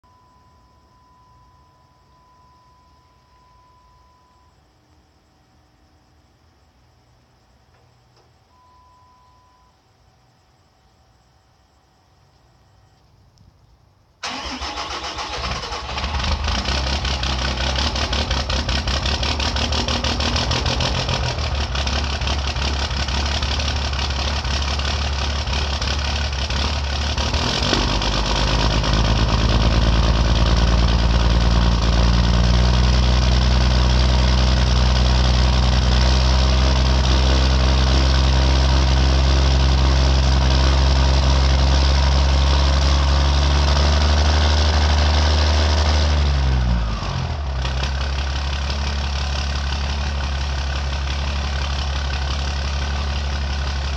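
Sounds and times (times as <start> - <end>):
diesel engine idling: 14.2 - 53.9.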